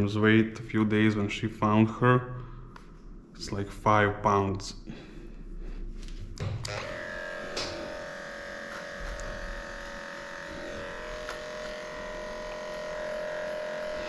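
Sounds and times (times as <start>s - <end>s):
electric clippers buzzing: 6.4s - 14.0s.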